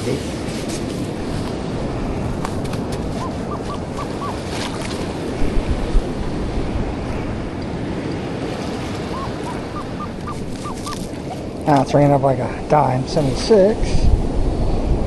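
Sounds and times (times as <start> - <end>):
surf: 0.0 - 15.0
wind buffeting microphone: 0.0 - 15.0.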